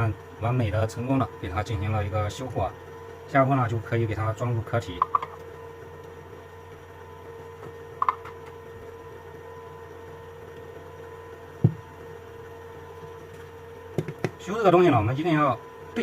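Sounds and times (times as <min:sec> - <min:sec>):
electrical hum: 0:00.0 - 0:16.0
dull knock: 0:11.6 - 0:11.8.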